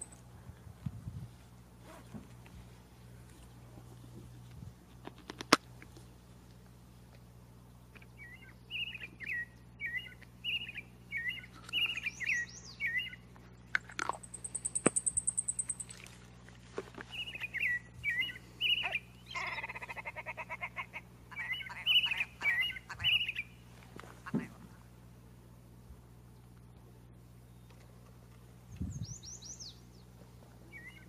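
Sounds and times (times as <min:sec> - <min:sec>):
thrush whistling song: 0:08.2 - 0:13.2, 0:17.1 - 0:19.4, 0:21.4 - 0:23.6, 0:28.8 - 0:29.9, 0:30.7 - 0:31.0
buzzy rattling bird call: 0:14.2 - 0:16.0.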